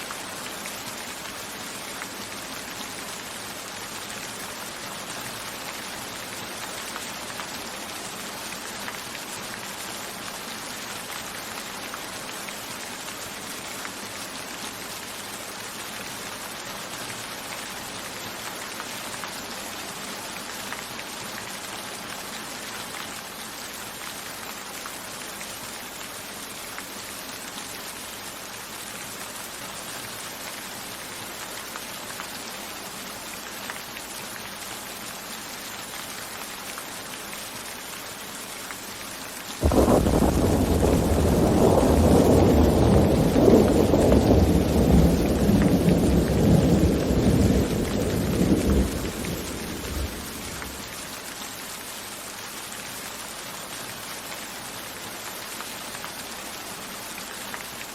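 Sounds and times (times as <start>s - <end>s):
steady rain hissing: 0.0s - 57.9s
raindrops on window pane: 39.6s - 51.0s.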